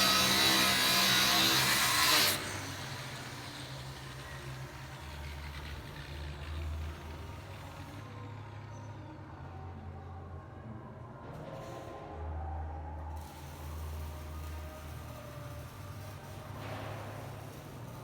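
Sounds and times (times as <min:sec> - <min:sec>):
power tool cutting: 0:00.0 - 0:04.9.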